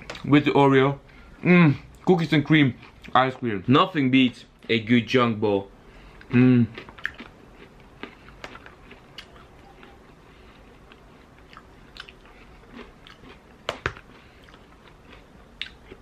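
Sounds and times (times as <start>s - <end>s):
man chewing ice cream: 6.1s - 16.0s.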